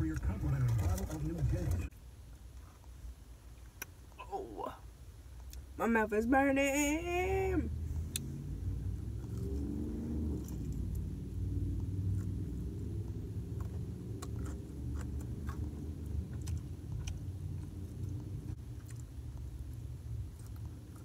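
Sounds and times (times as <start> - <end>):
car cabin rumble: 0.0 - 1.9
person chewing: 11.9 - 21.0.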